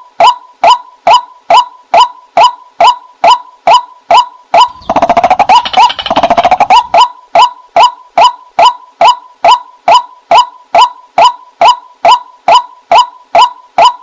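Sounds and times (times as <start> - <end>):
rapid dense bird chattering: 4.6 - 7.0
waterhen sharp kwak calls: 4.6 - 7.5.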